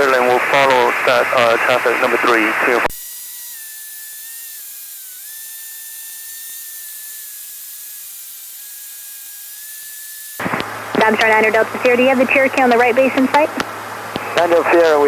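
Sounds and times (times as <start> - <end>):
intercom hiss: 0.0 - 2.9, 10.4 - 15.0.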